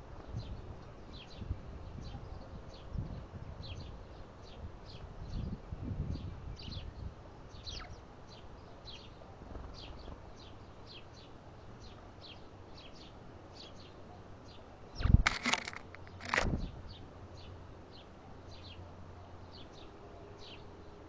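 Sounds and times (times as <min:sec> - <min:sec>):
small birds chip notes: 0:07.5 - 0:18.8
bump and rustle near microphone: 0:15.0 - 0:16.9.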